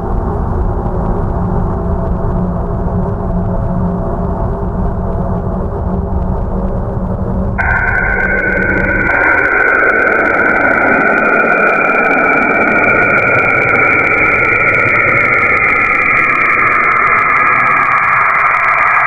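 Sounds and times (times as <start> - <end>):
low hum: 0.0 - 19.0
eerie hiss: 7.6 - 19.0
high whistling drone: 7.6 - 19.0.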